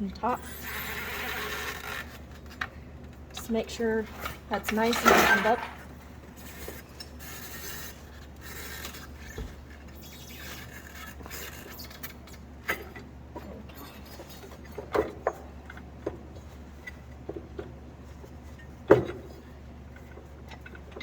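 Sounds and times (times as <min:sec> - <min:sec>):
rubber belt rubbing and scraping: 0:00.3 - 0:02.6, 0:05.9 - 0:12.4.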